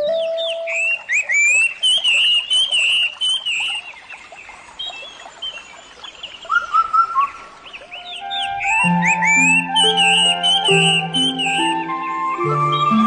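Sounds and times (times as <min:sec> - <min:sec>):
lower whistled bird notes: 0:00.0 - 0:03.8, 0:06.4 - 0:13.0
birds chirping and twittering: 0:00.0 - 0:13.0.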